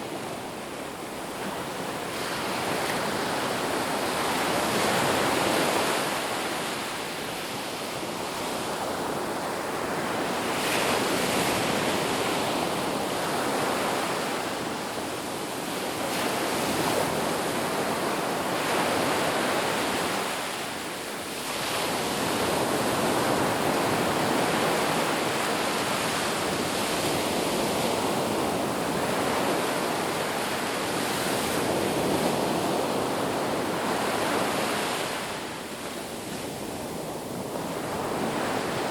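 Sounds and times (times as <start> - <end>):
ocean surf washing on beach: 0.0 - 38.9.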